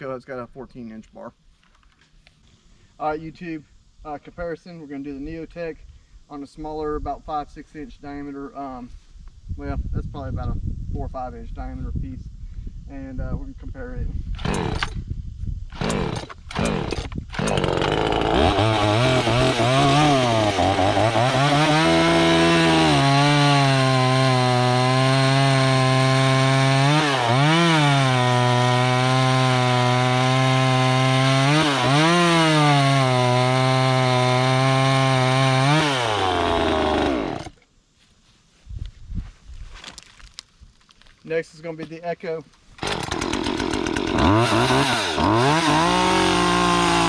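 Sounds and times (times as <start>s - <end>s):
chainsaw cutting log: 14.4s - 15.0s, 15.7s - 37.6s, 42.8s - 47.0s.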